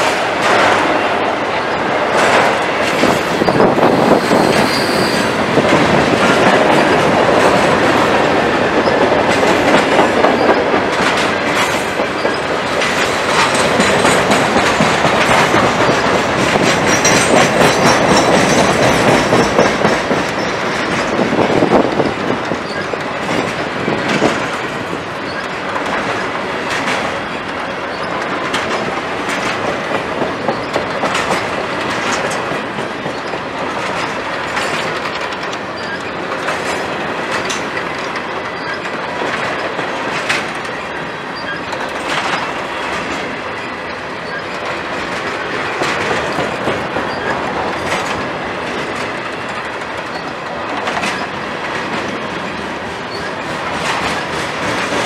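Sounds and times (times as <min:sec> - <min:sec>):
train wheels clacking over rails: 0:00.0 - 0:55.0
faint wheel squeal: 0:04.3 - 0:05.3.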